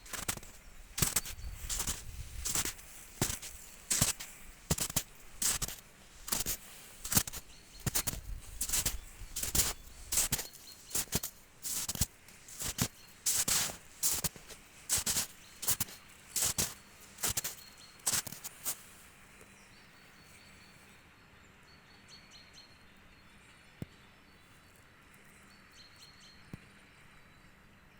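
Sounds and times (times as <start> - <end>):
footsteps crunching: 0.0 - 19.2.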